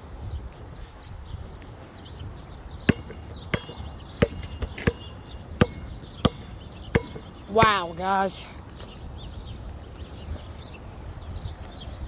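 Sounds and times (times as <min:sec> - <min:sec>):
footsteps on hard ground: 0:00.0 - 0:09.1
wind rumbling on microphone: 0:00.0 - 0:12.0.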